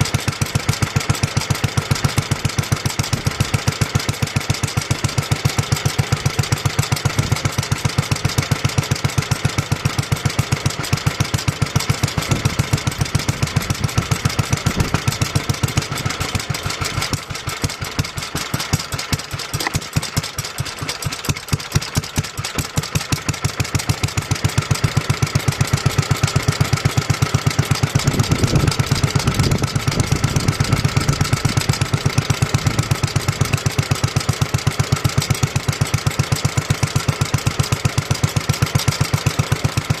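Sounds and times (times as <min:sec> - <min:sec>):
stationary engine running: 0:09.7 - 0:40.0.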